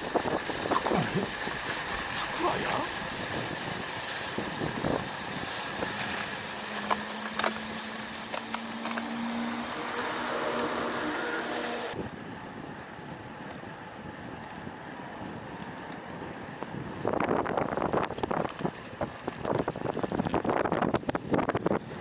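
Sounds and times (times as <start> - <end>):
wind rushing over microphone: 0.0 - 6.8, 16.2 - 22.0
bike road noise: 0.0 - 22.0.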